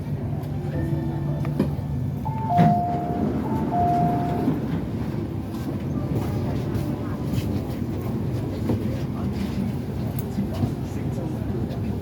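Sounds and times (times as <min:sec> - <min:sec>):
train running rumble: 0:00.0 - 0:12.0
two-note falling chime: 0:02.3 - 0:04.6.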